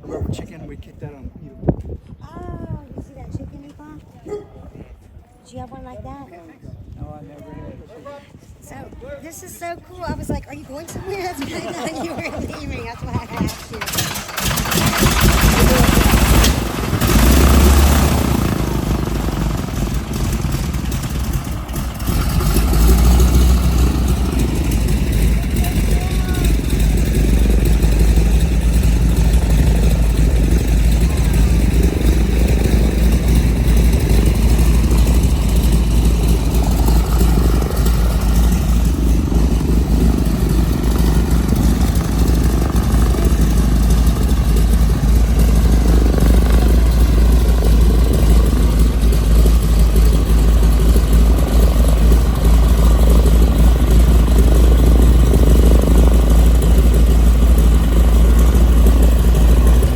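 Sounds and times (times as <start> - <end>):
piston aircraft engine idling: 10.1 - 59.9.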